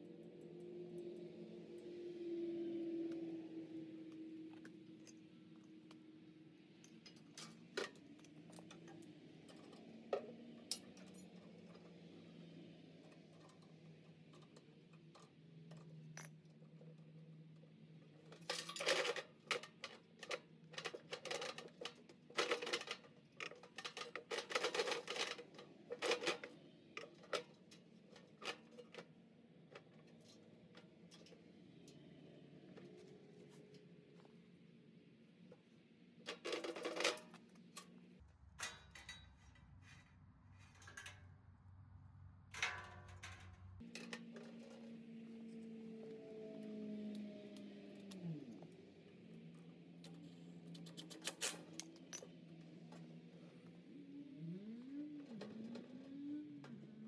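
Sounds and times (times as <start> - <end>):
metal tools clinking and clattering: 18.4 - 26.5, 40.6 - 41.2.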